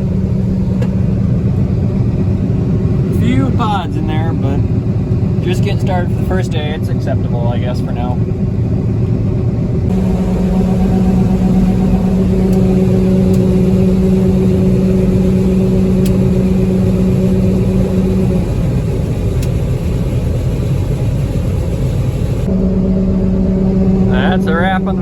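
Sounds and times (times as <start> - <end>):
combine harvester rumbling: 0.0 - 25.0
steady hum: 7.6 - 25.0.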